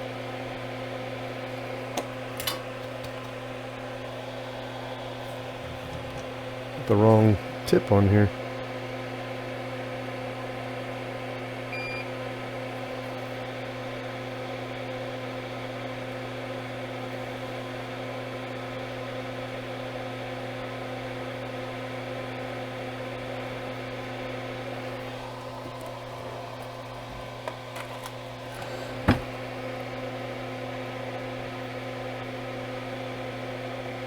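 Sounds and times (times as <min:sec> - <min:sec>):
electric fan drone: 0:00.0 - 0:34.0.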